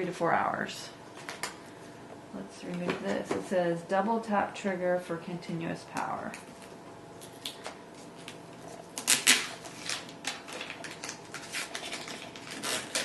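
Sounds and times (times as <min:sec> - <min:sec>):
packaging crinkling: 0:06.6 - 0:13.0
packaging rustling: 0:06.6 - 0:13.0.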